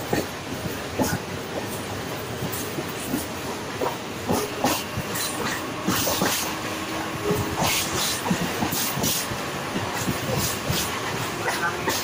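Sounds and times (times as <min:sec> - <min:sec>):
train running noise: 0:00.0 - 0:12.0
wheels clattering over rail joints: 0:02.4 - 0:12.0.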